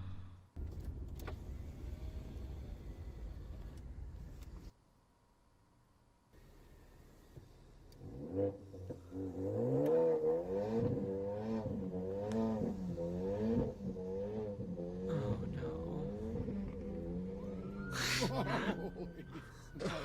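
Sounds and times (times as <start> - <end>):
car engine revving: 6.8 - 19.9.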